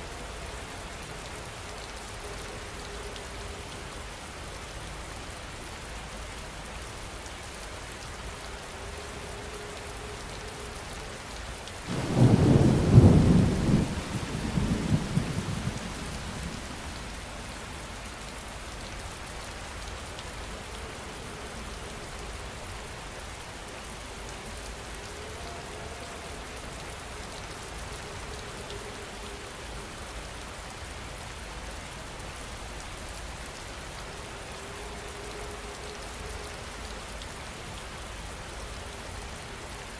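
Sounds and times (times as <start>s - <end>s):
heavy rain: 0.0s - 39.9s
thunder clap and rumble: 11.9s - 17.5s.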